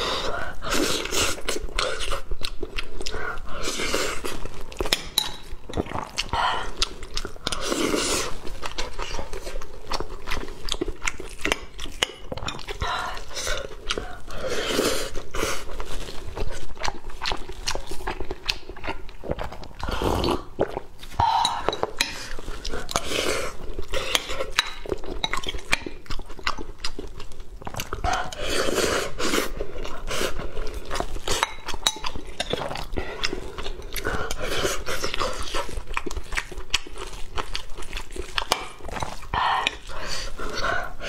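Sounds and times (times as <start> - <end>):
chewing and wet mouth sounds: 0.0 - 41.0.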